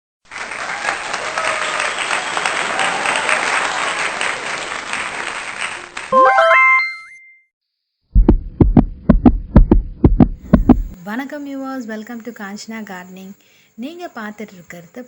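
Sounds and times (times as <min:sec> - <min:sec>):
crowd applauding: 0:00.2 - 0:06.7
quick upward-stepping electronic tones: 0:06.2 - 0:07.4.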